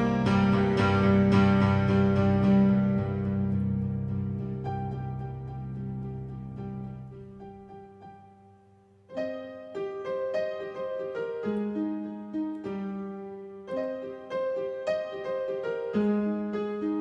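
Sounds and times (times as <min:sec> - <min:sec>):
piano playing notes and chords: 0:00.0 - 0:17.0.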